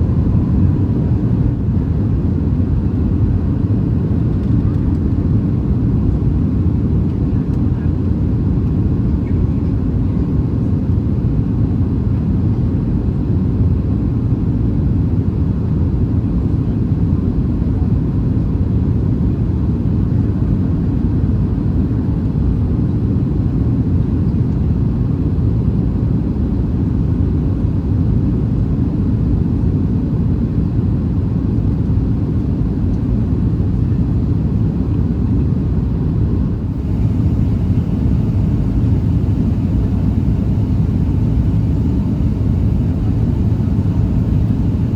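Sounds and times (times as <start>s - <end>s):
jet engine rumble in cabin: 0.0s - 44.9s
airflow: 36.6s - 44.9s.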